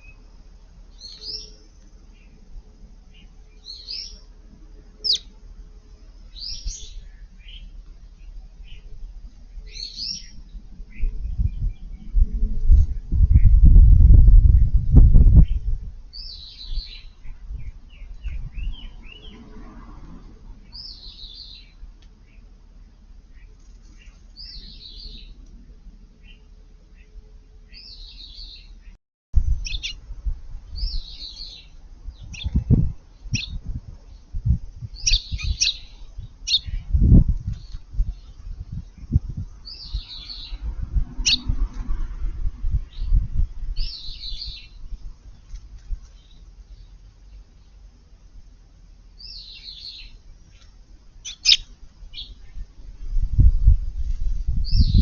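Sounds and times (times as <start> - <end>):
sparrows chirping: 0.0 - 12.2, 15.4 - 19.6, 20.6 - 28.9, 29.6 - 30.0, 30.6 - 41.6, 42.8 - 48.0, 48.6 - 55.0
loud low rumble: 8.1 - 20.8
muffled thumps and rumble: 10.9 - 15.9.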